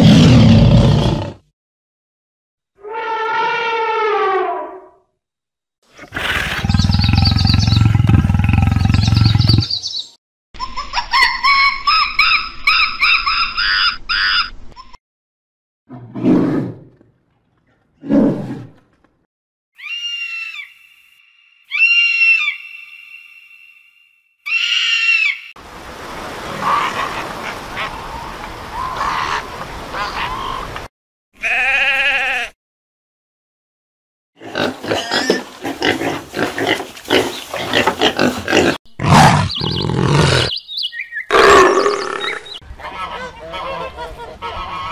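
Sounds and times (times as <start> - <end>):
lioness roaring: 0.0 - 1.5, 38.2 - 40.5, 41.3 - 42.4
small birds chirping: 6.6 - 8.1, 8.8 - 10.2, 38.6 - 42.6
bird of prey screaming: 19.8 - 21.0, 21.6 - 23.3, 24.4 - 25.5
fur seals bleating and barking: 31.4 - 32.5
sheep bleating: 31.4 - 32.6.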